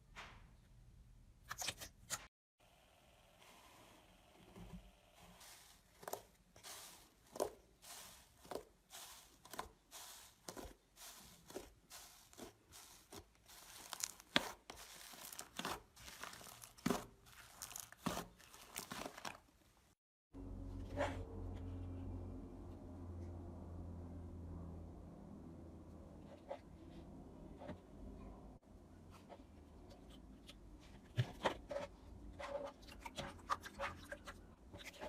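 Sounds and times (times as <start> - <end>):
crisp crackling and crunching: 5.1 - 20.0.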